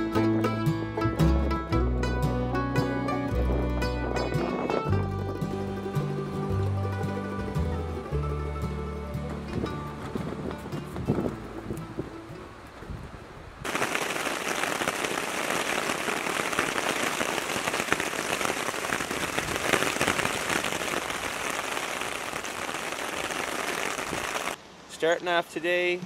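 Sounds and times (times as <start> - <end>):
rain on a tarp: 9.9 - 25.4.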